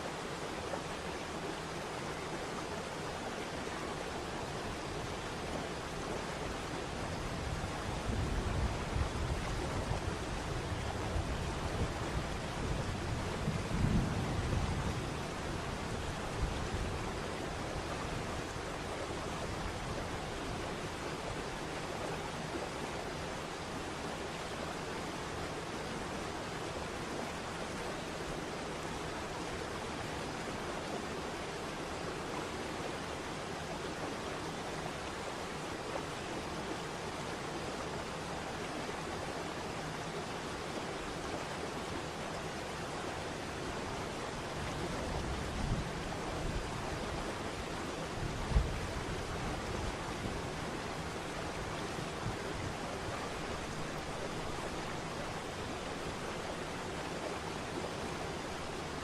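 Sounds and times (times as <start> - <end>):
waterfall rushing: 15.1 - 59.0.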